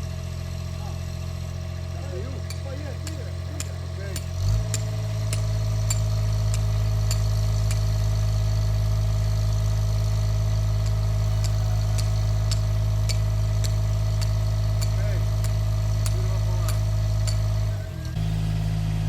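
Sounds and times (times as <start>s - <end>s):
engine running steadily: 0.0s - 19.0s
faint regular tick: 2.5s - 7.8s, 10.8s - 18.2s.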